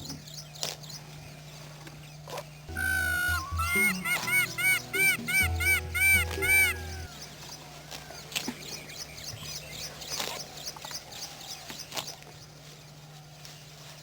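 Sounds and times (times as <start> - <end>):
small birds chirping: 0.0 - 14.0
low steady hum: 2.6 - 7.2.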